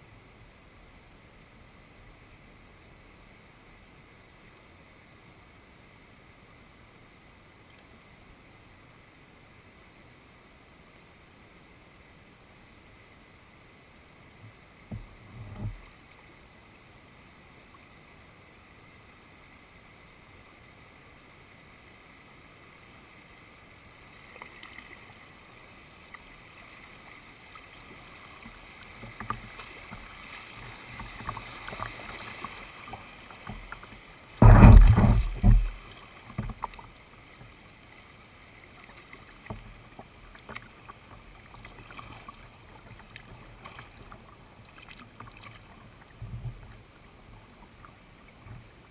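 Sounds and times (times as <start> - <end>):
paddle strokes in water: 26.1 - 48.9
knocks: 34.4 - 35.8
loud rumbling thump: 34.4 - 35.8.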